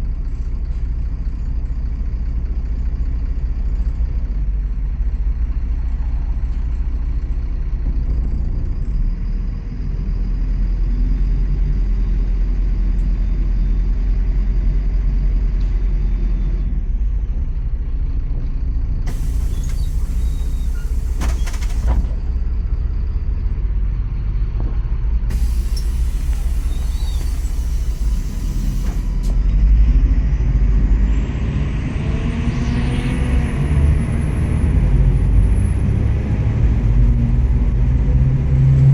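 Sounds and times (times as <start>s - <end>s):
bus engine rumble: 0.0s - 38.9s
rising engine whine: 4.6s - 38.9s
compressed air hisses: 19.1s - 22.0s, 25.3s - 29.3s.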